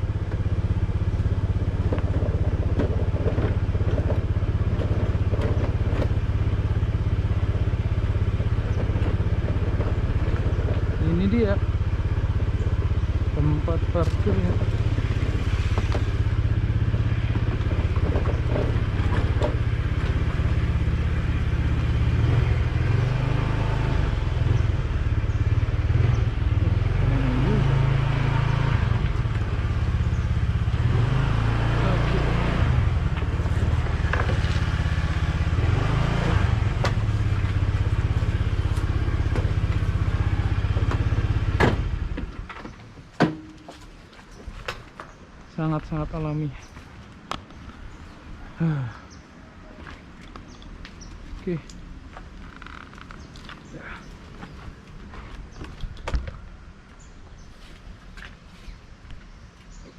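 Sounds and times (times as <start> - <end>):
motorcycle engine running: 0.0 - 42.7.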